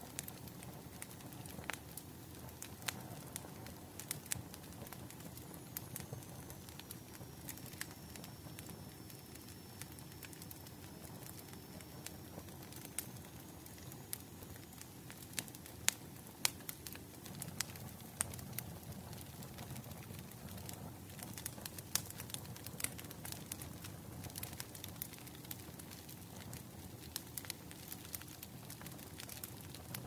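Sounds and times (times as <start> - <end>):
low rumble of burning: 0.0 - 30.0
wood fire crackling: 0.0 - 30.0
faint high whistle: 5.7 - 14.7.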